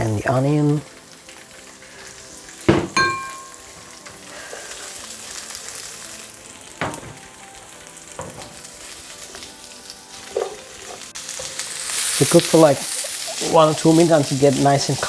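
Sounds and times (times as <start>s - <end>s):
vegetables sizzling in oil: 0.0s - 15.0s
utensil knocking against pan: 2.7s - 3.6s.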